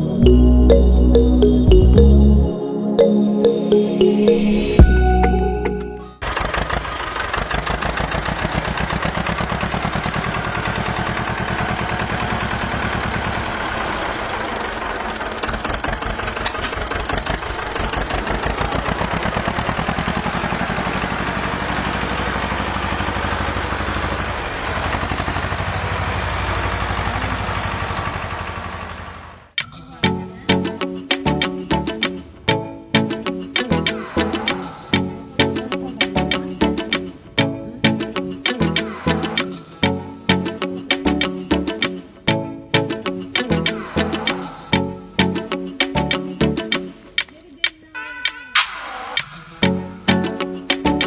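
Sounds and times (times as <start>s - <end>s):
tractor engine chugging: 6.2s - 29.5s.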